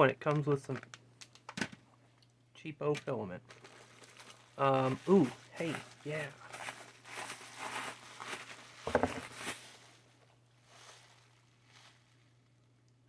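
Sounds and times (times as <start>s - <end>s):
packaging rustling: 3.5s - 12.2s.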